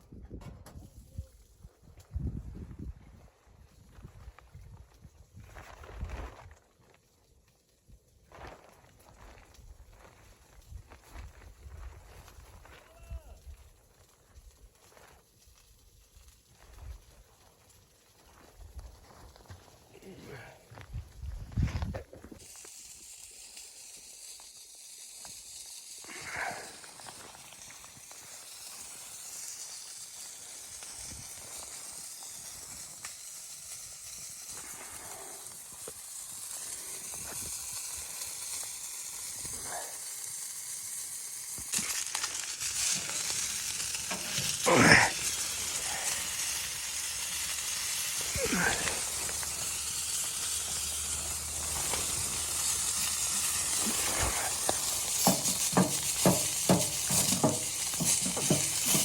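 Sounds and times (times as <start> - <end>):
food sizzling in a frying pan: 22.3 - 59.0
utensil stirring against pan: 41.8 - 59.0.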